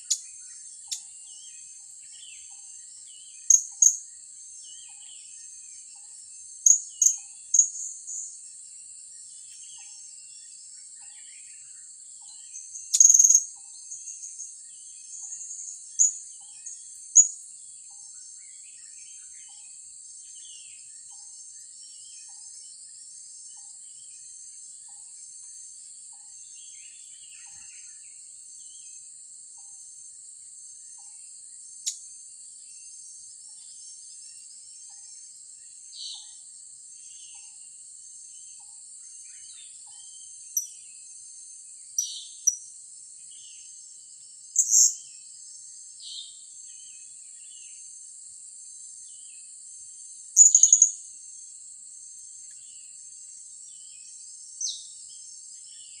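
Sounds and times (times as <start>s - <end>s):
insects buzzing: 11.6s - 18.5s, 36.8s - 56.0s.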